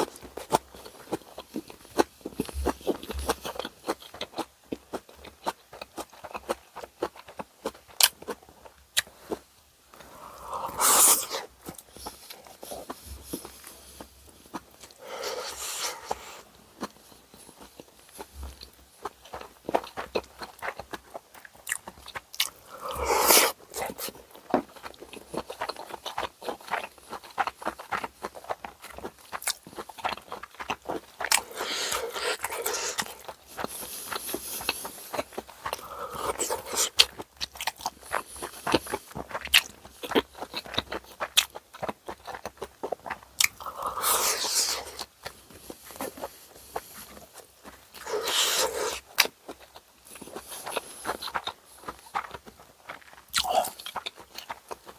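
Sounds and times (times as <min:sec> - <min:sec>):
wet chewing mouth clicks: 0:10.0 - 0:54.9
crunchy bites: 0:18.6 - 0:46.3, 0:47.6 - 0:54.9.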